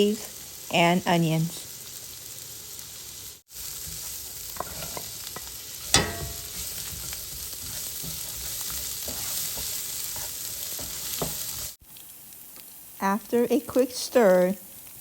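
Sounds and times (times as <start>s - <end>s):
hot oil sizzling in a pan: 0.0s - 15.0s
utensil scraping a pan: 3.8s - 11.8s
loud metal clang: 5.9s - 6.6s.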